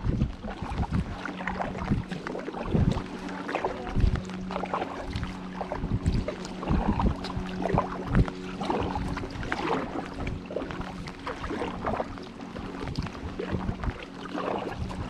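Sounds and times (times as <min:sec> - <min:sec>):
paddle splashing in water: 0:00.0 - 0:15.0
steady low hum: 0:00.0 - 0:15.0
water lapping at hull: 0:00.0 - 0:15.0
wind buffeting microphone: 0:00.0 - 0:15.0.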